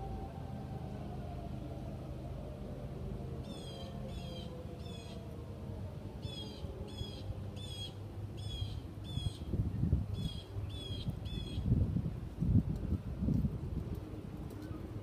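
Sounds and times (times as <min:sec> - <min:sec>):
warning siren winding down: 0:00.0 - 0:07.8.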